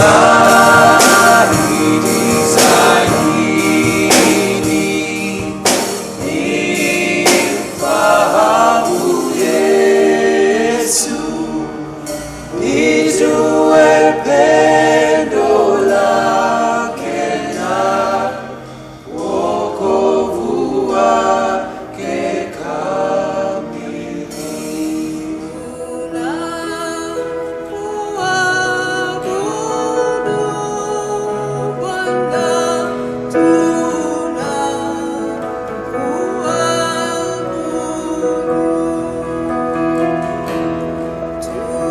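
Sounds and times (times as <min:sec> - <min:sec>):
sharp percussive hits: 0:00.0 - 0:09.9
choir singing gospel song: 0:00.0 - 0:40.2, 0:41.4 - 0:41.9.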